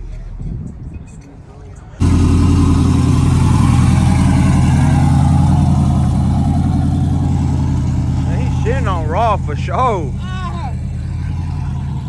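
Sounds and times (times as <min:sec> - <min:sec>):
truck engine droning: 0:02.0 - 0:12.0.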